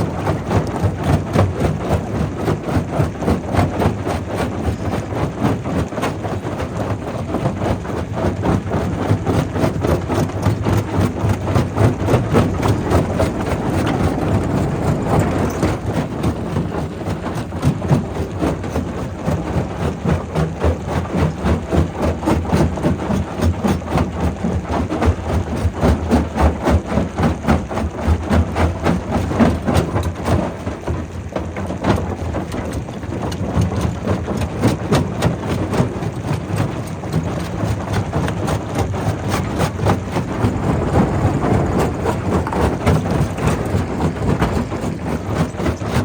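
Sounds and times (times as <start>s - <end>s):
rock crusher rumbling: 7.4s - 18.7s, 37.6s - 46.0s.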